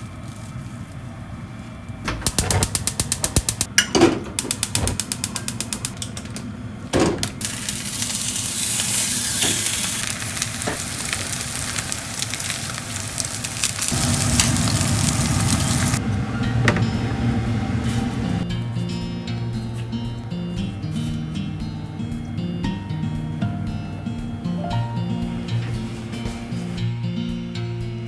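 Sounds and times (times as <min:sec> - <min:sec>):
quick clicks: 0:02.2 - 0:03.7, 0:04.4 - 0:06.5
food sizzling in a hot pan: 0:07.4 - 0:16.0.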